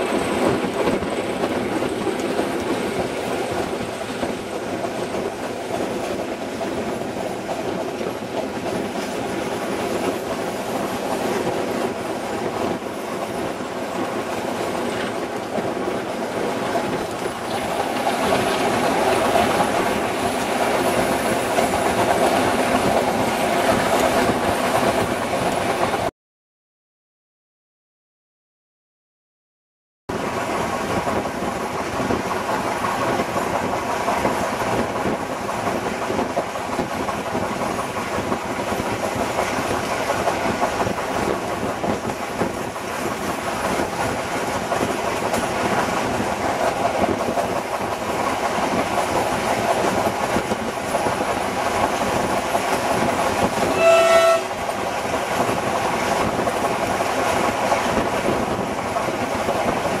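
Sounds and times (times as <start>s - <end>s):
train running noise: 0.0s - 26.1s, 30.1s - 60.0s
train horn blast: 53.6s - 54.6s.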